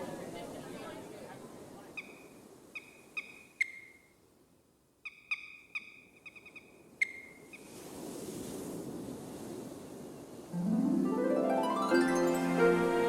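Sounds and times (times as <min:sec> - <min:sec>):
soft ambient hiss: 0:00.0 - 0:13.0
bird calling sharp notes: 0:01.9 - 0:04.2, 0:05.0 - 0:07.7.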